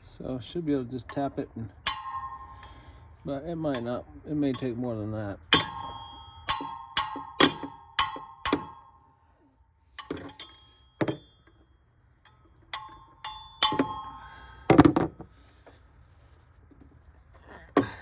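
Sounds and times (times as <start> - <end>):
hammer tapping metal wrench: 1.0 - 4.8, 5.4 - 9.0, 10.0 - 15.0.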